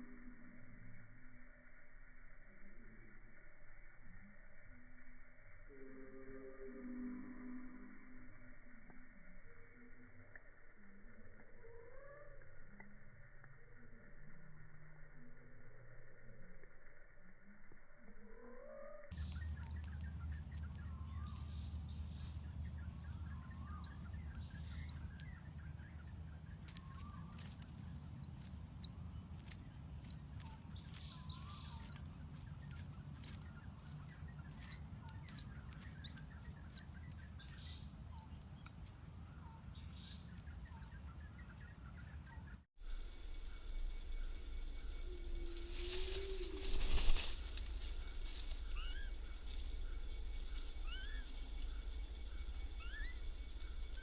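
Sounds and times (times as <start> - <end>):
low steady rumble: 0.0 - 54.0
nestlings chirping: 19.1 - 42.6.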